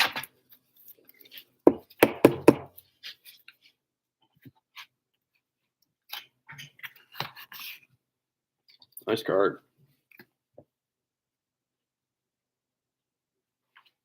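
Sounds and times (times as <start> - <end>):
sharp knocks on tabletop: 1.7 - 2.7.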